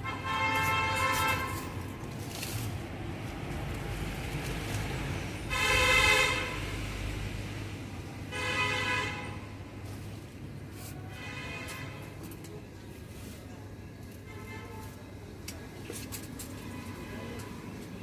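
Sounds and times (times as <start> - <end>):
vehicle horn blasts: 0.0 - 1.7, 5.5 - 6.6, 8.3 - 9.4.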